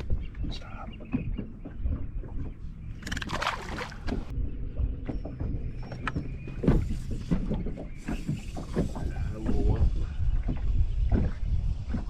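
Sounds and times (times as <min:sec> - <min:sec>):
irregular knocks: 0:00.0 - 0:02.9
low rumble on boat: 0:00.0 - 0:12.0.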